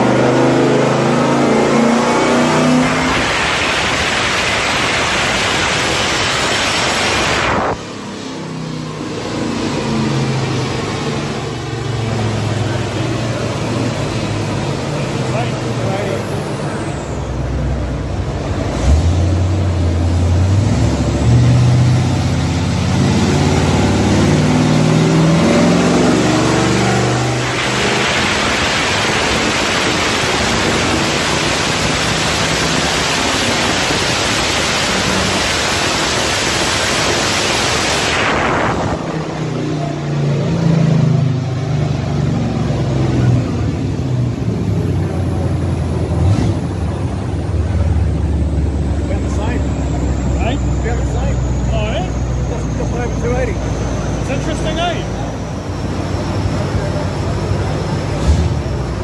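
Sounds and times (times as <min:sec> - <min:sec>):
car engine revving at full throttle: 0:00.0 - 0:59.0.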